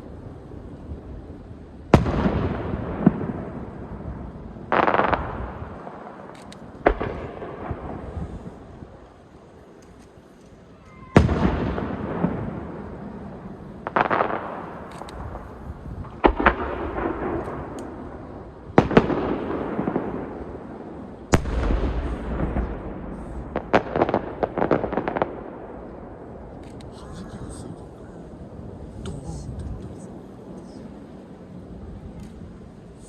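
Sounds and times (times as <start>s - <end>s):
rolling echo: 0.0s - 29.0s
firework shells booming: 1.9s - 8.9s, 11.1s - 26.9s
small firework bangs: 1.9s - 26.9s.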